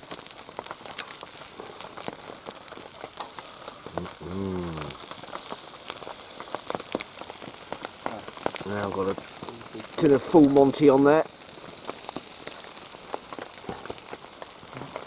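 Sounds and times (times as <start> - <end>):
chicken sizzling over campfire: 0.0 - 15.0
fire crackling and popping: 0.0 - 15.0
short hummed voice sound: 4.2 - 5.0.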